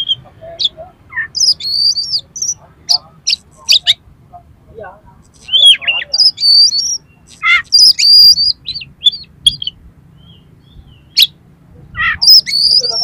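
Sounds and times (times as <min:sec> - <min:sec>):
bird singing whistled notes: 0:00.0 - 0:04.0, 0:05.4 - 0:11.4, 0:12.0 - 0:13.0
harsh rasping bird notes: 0:05.2 - 0:13.0.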